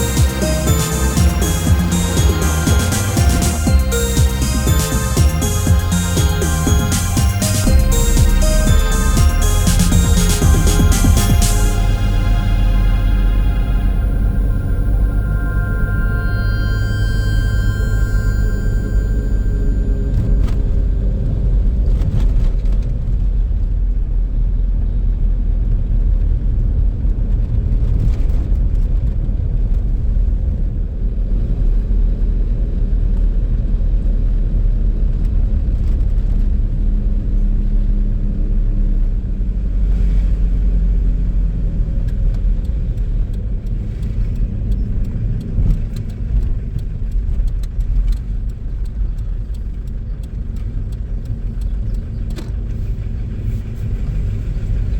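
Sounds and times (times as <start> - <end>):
van engine and road rumble: 19.8 - 54.9.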